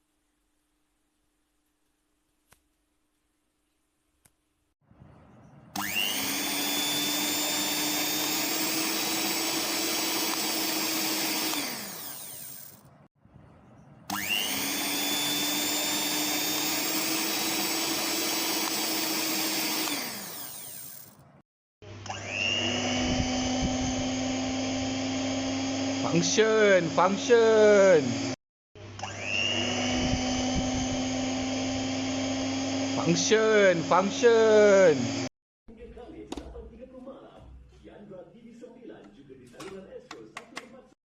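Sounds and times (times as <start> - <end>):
electric mixer motor whining: 5.7 - 12.9, 14.1 - 21.2, 21.8 - 35.3.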